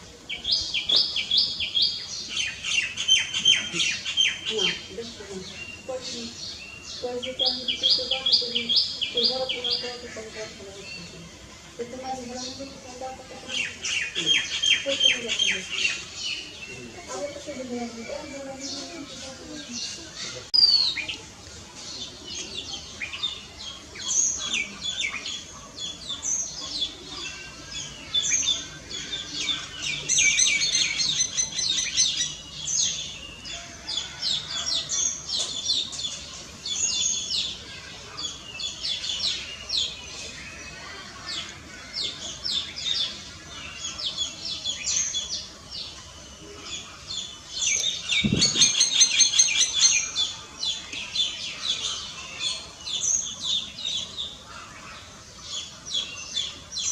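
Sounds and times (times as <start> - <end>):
bird chirping and chattering: 41.4 - 56.9.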